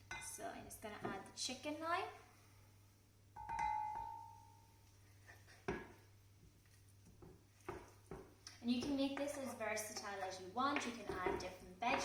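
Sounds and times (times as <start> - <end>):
crockery clinking on a dish: 3.4 - 4.5.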